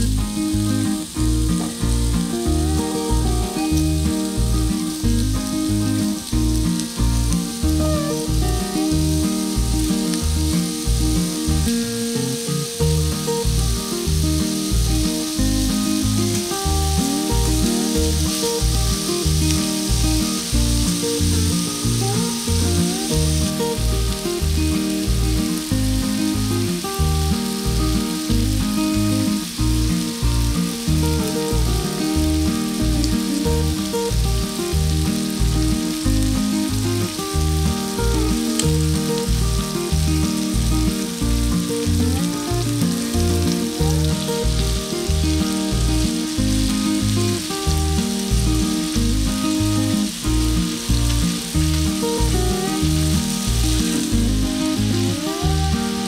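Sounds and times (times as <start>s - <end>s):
food sizzling in hot oil: 0.0s - 56.0s.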